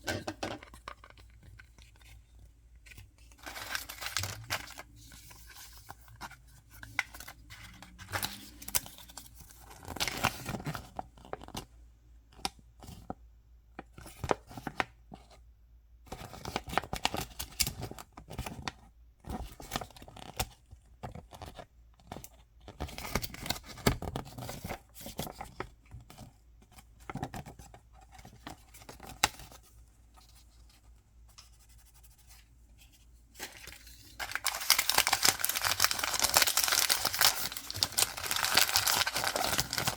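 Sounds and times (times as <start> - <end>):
packaging tearing and crinkling: 3.4 - 4.9, 33.4 - 39.9.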